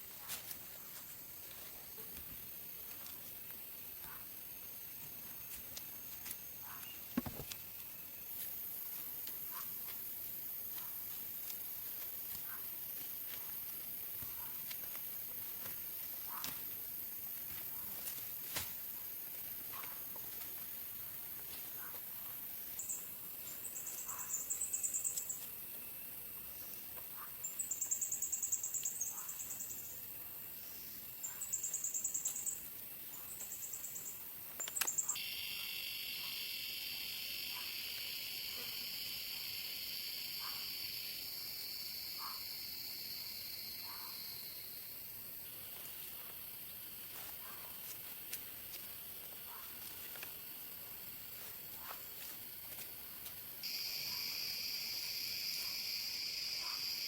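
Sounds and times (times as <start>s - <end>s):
insects trilling: 0.0s - 57.0s
high insect drone: 20.2s - 47.3s, 48.1s - 57.0s.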